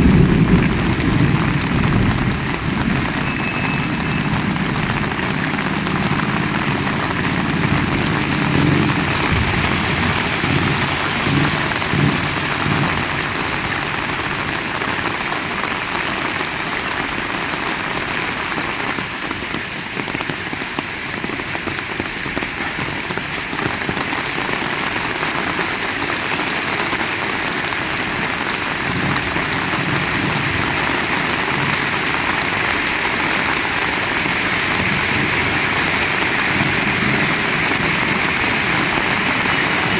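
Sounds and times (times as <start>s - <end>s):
low engine hum: 0.0s - 13.6s
heavy rain falling: 0.0s - 39.9s.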